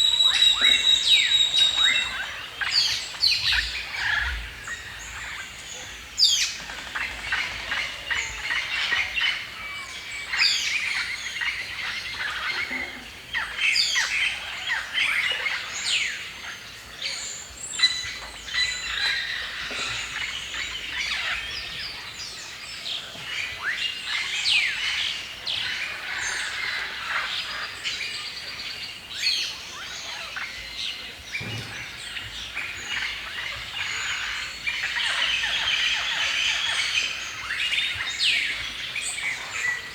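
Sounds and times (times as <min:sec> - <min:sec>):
birds chirping and singing: 0:00.0 - 0:12.8.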